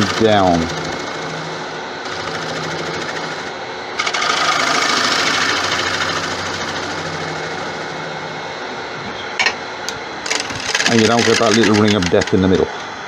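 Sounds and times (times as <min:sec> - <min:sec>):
wood lathe humming: 0:00.0 - 0:08.9, 0:10.2 - 0:12.7
gouge cutting wood shavings: 0:02.1 - 0:08.1, 0:10.3 - 0:12.4.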